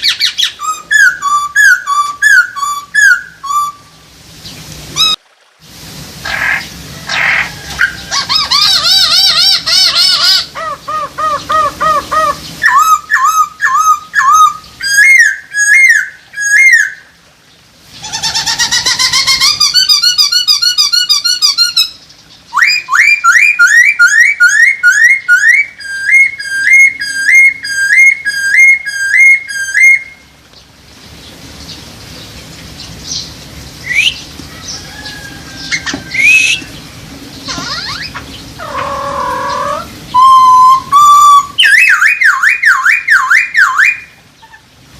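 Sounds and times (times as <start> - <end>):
laughingthrush singing whistled phrases: 0.0 - 4.0, 7.1 - 17.1, 18.0 - 30.2, 33.8 - 34.3, 35.6 - 36.8, 37.5 - 44.6.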